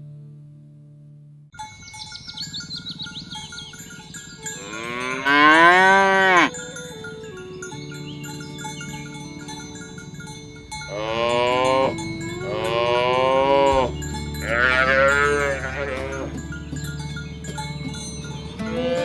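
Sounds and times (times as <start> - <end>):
cattle mooing: 4.5 - 6.6, 10.9 - 16.4, 18.6 - 19.0.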